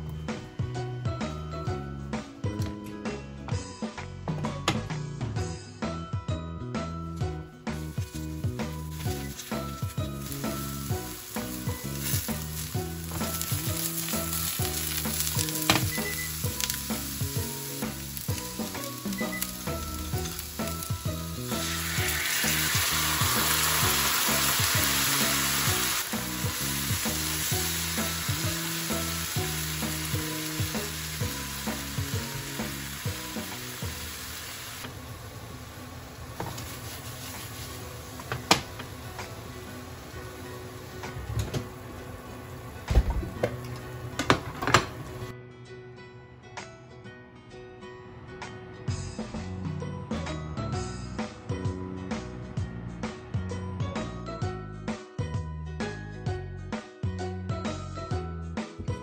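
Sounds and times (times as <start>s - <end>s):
food sizzling in oil: 7.7s - 42.9s
sauce poured into hot pan: 8.8s - 34.9s.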